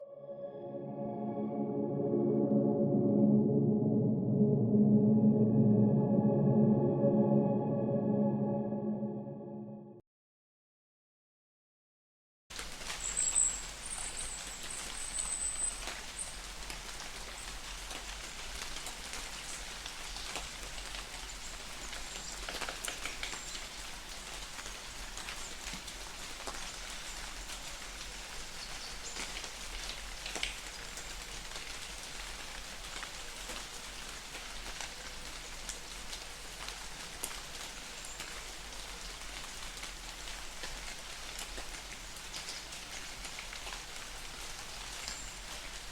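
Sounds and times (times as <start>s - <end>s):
light rain hissing: 12.6s - 45.9s.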